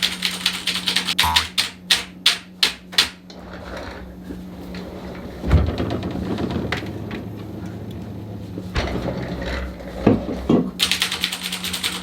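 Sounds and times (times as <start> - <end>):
rapid sharp clicks: 0.0 - 3.1, 10.8 - 12.0.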